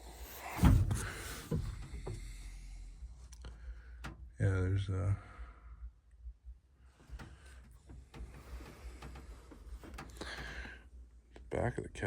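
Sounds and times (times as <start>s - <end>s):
clicks and knocks of handling: 7.0s - 10.8s.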